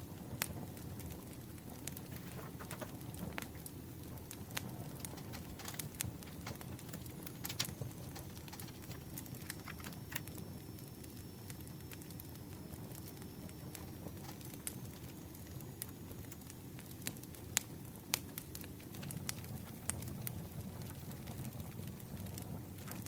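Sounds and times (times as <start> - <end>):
campfire crackling: 0.0 - 23.0
fire popping and snapping: 0.0 - 23.0.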